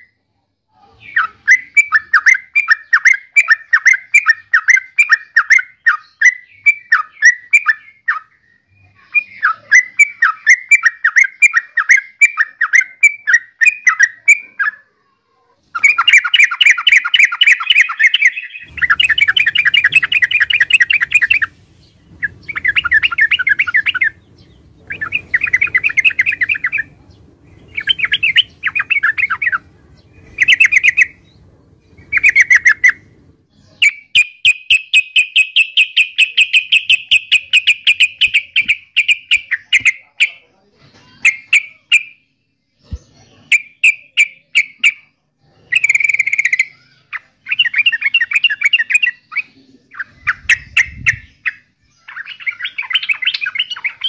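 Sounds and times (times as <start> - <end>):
bird calling bubbly chattering notes: 15.8 - 27.0, 27.6 - 31.4, 32.0 - 33.2, 45.7 - 54.0
faint low hum: 18.6 - 33.9.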